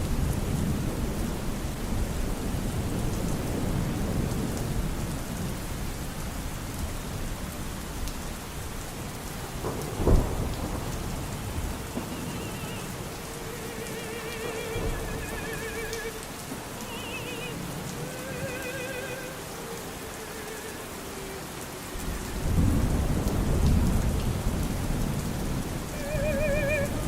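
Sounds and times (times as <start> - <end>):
heavy rain: 0.0 - 27.0
rolling thunder: 9.3 - 20.4, 21.8 - 27.0
thunder crack: 9.6 - 16.6, 22.0 - 27.0.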